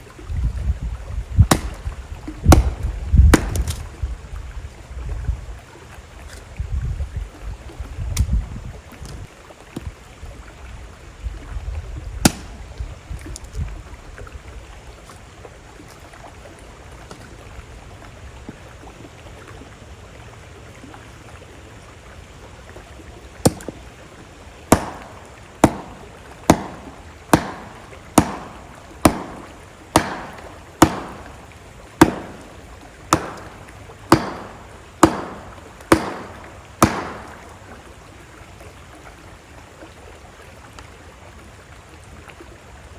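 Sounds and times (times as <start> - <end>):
sharp knocks: 1.5 - 1.9, 2.5 - 3.8, 24.7 - 37.6
river rushing: 23.5 - 38.2.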